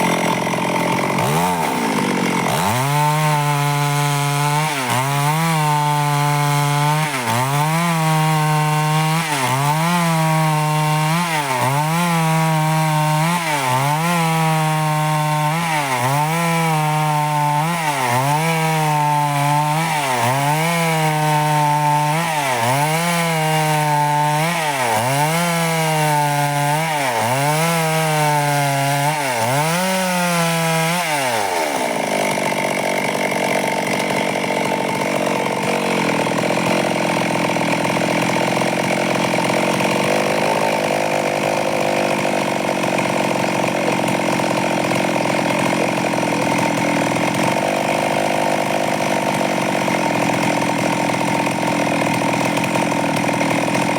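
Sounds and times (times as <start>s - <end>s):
chainsaw cutting wood: 0.0s - 53.9s
chainsaw idling: 0.0s - 53.9s.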